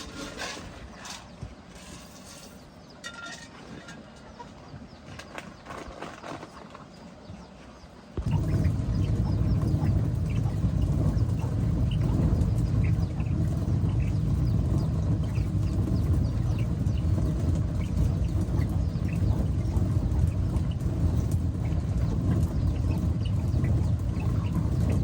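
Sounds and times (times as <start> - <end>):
chicks cheeping: 3.7 - 25.0
low rumble: 8.2 - 25.0.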